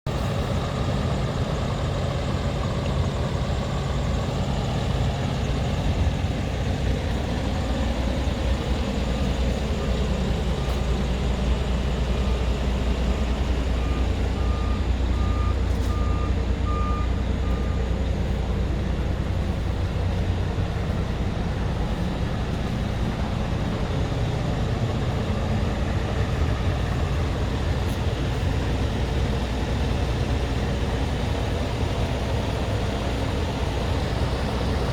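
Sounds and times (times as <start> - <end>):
diesel engine rumbling: 0.0 - 34.9
short beeps: 13.7 - 18.0.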